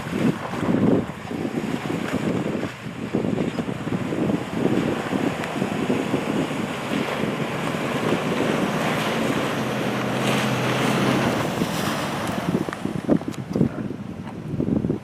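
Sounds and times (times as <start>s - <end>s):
wind buffeting microphone: 0.0s - 15.0s
pickup engine running: 3.2s - 13.5s.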